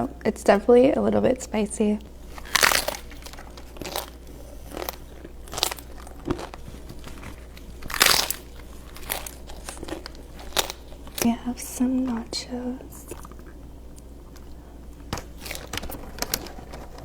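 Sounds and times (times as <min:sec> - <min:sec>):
crunchy food being chewed: 0:02.2 - 0:11.4, 0:12.9 - 0:17.0.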